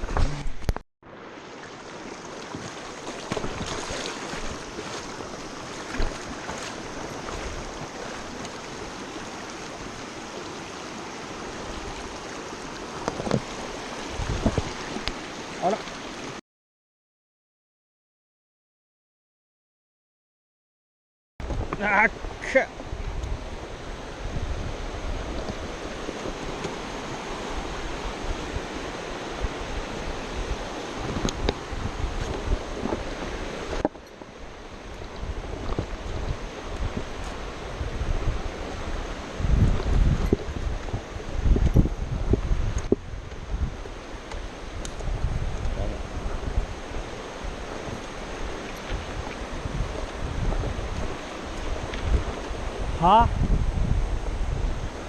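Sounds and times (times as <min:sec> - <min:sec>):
river rushing over riffle: 0:00.0 - 0:16.4, 0:21.8 - 0:55.0
knocks and splashes: 0:02.2 - 0:10.0
wind buffeting microphone: 0:11.4 - 0:15.2, 0:21.4 - 0:55.0.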